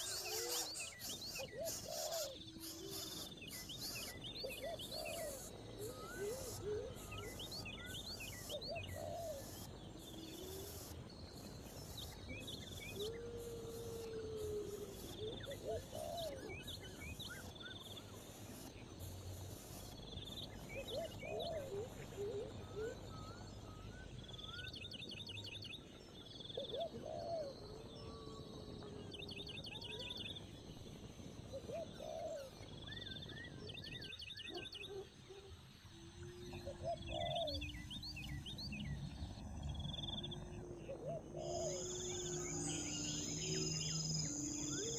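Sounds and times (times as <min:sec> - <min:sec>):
low bird calls: 0:00.0 - 0:11.0, 0:31.5 - 0:44.9.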